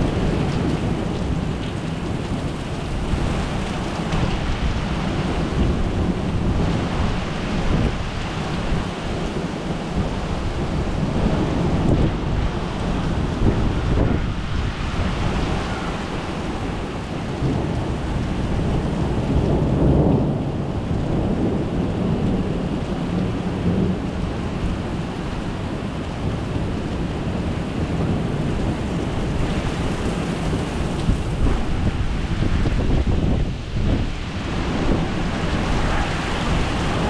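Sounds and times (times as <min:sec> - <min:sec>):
heavy rain: 0:00.0 - 0:37.0
thunder rumbling: 0:00.0 - 0:37.0.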